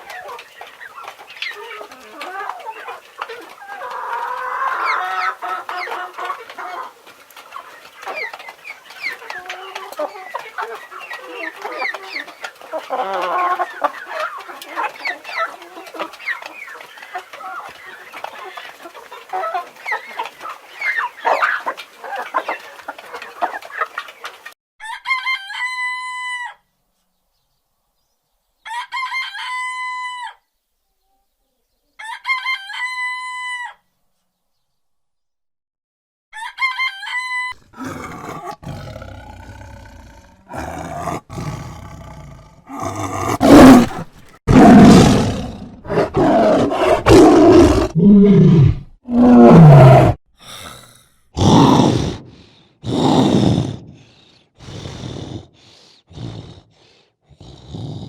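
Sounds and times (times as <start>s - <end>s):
chickens clucking: 0.0s - 24.6s.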